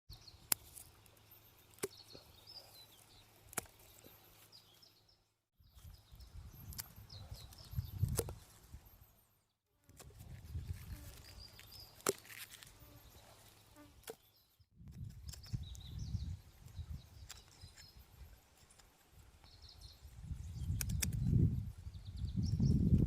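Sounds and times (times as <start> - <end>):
small birds chirping: 0.1 - 9.6, 10.3 - 23.0.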